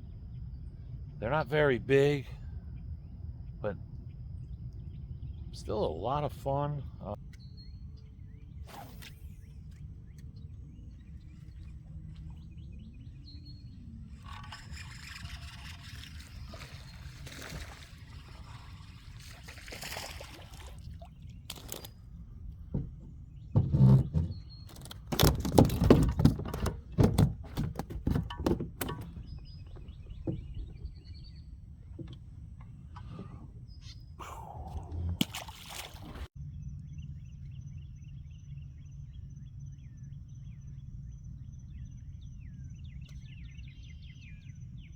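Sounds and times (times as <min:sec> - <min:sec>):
birds chirping: 0:00.0 - 0:44.9
water splashing against boat: 0:14.1 - 0:31.1, 0:35.0 - 0:36.3.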